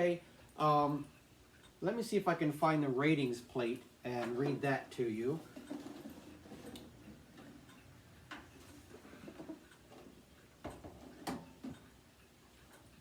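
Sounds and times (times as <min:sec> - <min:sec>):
knocks and clicks handling heater: 0:09.3 - 0:11.9.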